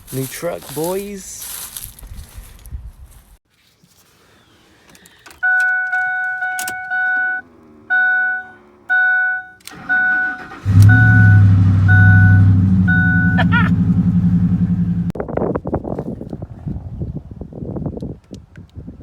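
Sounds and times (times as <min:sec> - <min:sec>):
truck engine cranking and starting: 0:05.4 - 0:15.2
two-note warning chime: 0:06.1 - 0:13.6
truck engine idling: 0:06.9 - 0:15.2.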